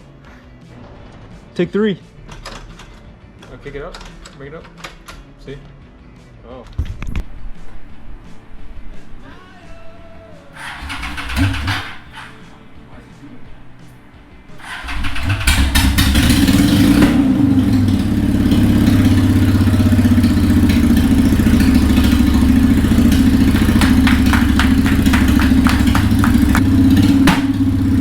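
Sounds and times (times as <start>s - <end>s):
motorcycle engine idling: 10.2s - 28.0s
engine pops: 10.5s - 12.9s, 14.5s - 28.0s.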